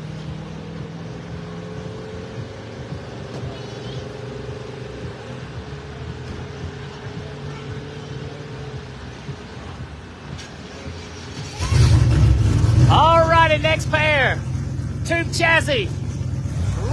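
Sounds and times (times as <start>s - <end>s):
drag car engine idling: 10.7s - 16.9s.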